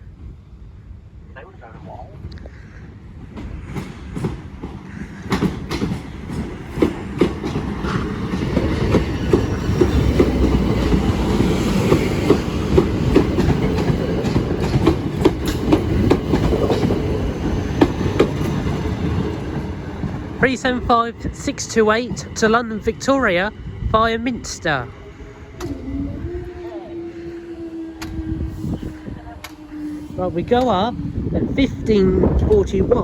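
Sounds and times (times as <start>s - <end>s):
train rumble: 0.0s - 33.0s
train wheels clicking over rail joints: 2.3s - 23.1s, 25.5s - 26.0s, 28.0s - 28.4s.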